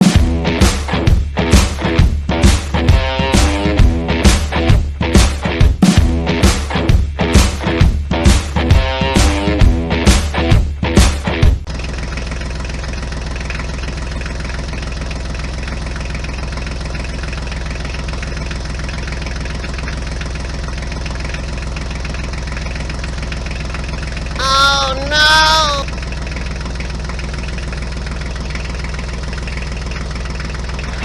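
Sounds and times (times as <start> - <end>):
music: 0.0 - 11.7
engine idling with knocking beat: 0.0 - 25.0, 25.8 - 31.0.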